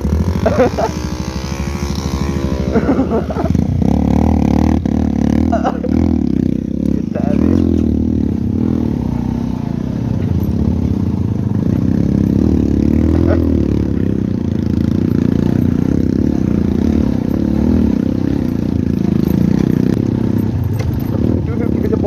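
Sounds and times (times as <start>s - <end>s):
motorcycle engine revving: 0.0s - 22.0s
motorcycle rattling: 0.0s - 22.0s.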